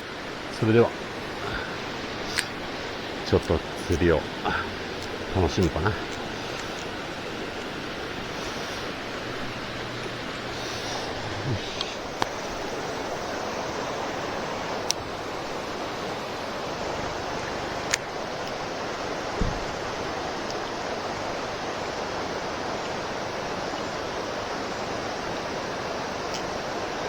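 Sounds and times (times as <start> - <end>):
mountain stream rushing: 0.0 - 27.0
sharp clicks: 2.2 - 4.2
short low thump: 19.4 - 19.8.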